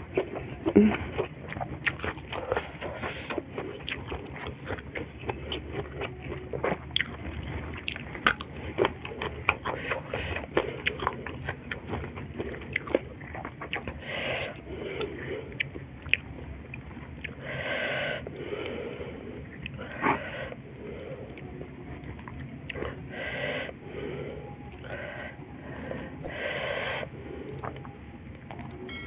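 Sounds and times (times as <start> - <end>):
chewing with wet clicks: 0.0 - 17.4, 18.2 - 20.2, 20.9 - 23.1, 27.5 - 28.8.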